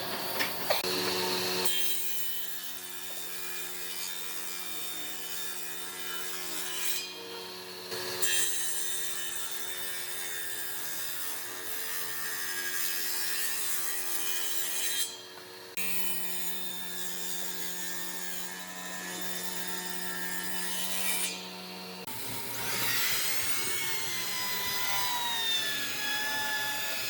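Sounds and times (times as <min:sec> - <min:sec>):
power tool motor hum: 0:00.0 - 0:01.7, 0:17.1 - 0:27.0.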